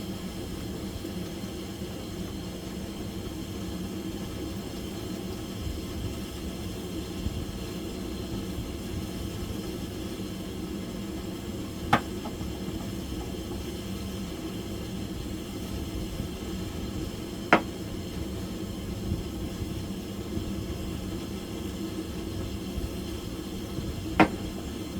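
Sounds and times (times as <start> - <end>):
steady low hum: 10.4 - 24.9.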